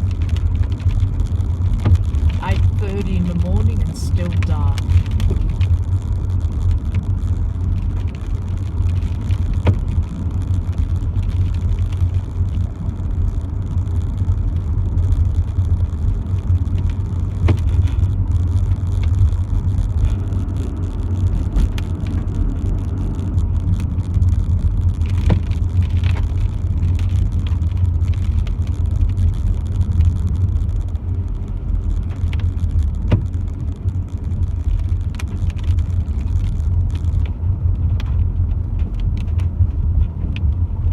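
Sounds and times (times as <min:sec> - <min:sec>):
car driving low rumble: 0:00.0 - 0:40.9.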